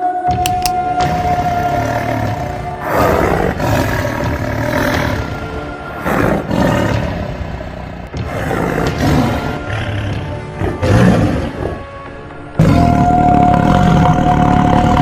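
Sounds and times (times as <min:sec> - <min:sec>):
background music: 0:00.0 - 0:15.0
tiger roaring: 0:06.0 - 0:11.8.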